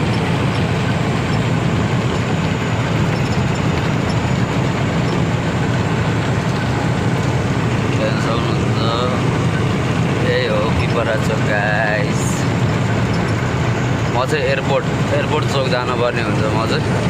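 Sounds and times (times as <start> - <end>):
road noise: 0.0 - 17.0
truck engine droning: 0.0 - 17.0.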